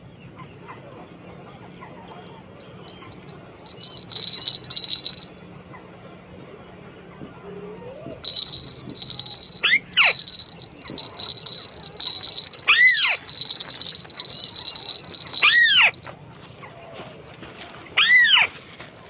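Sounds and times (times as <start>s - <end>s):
high rattling trill: 2.2s - 5.4s, 8.1s - 16.1s.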